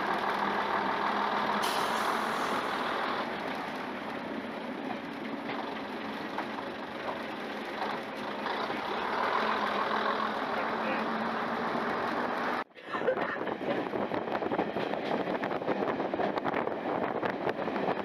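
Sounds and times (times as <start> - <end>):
diesel railcar engine and wheels: 0.0 - 18.0.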